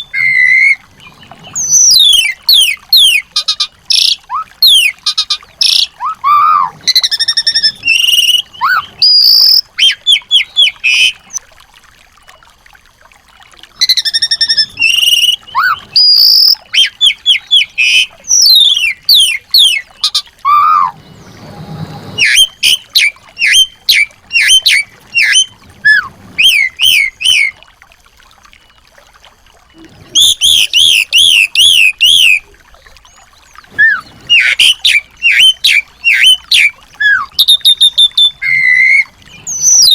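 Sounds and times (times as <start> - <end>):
songbirds chirping and trilling: 29.7 - 39.9.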